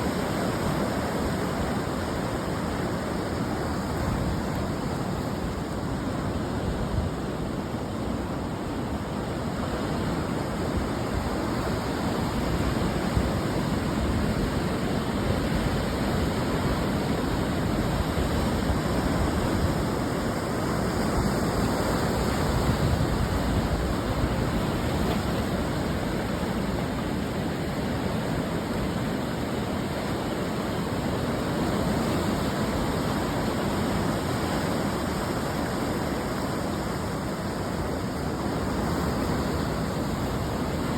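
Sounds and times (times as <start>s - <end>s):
surf breaking on shore: 0.0s - 40.9s.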